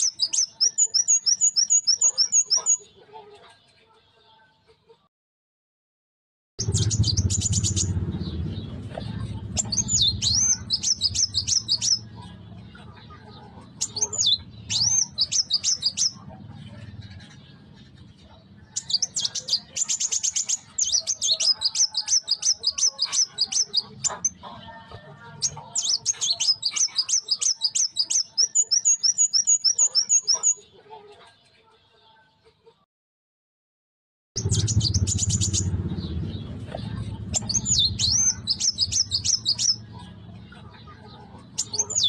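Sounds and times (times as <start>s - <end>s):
bird chirping and trilling: 0.0s - 3.5s, 6.6s - 30.8s, 34.4s - 42.0s
low hum: 6.6s - 12.6s.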